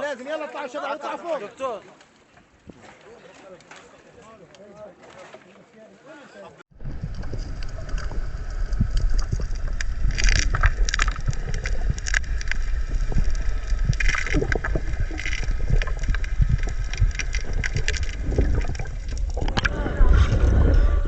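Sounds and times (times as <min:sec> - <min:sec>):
water splashing: 0:06.7 - 0:21.0
wind rumbling on microphone: 0:06.7 - 0:21.0.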